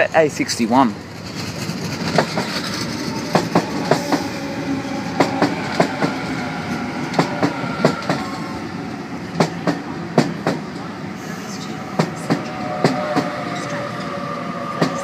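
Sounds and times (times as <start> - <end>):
electric train hum and whine: 0.9 - 15.0
train wheels clacking over rail joints: 1.1 - 4.3, 5.2 - 6.2, 7.1 - 8.3.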